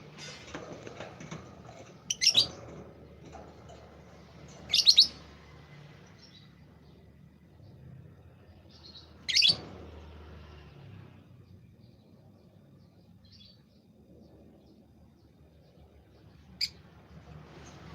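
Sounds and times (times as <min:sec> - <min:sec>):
small bird chirping: 0:02.1 - 0:02.7, 0:04.7 - 0:05.3, 0:06.2 - 0:09.7.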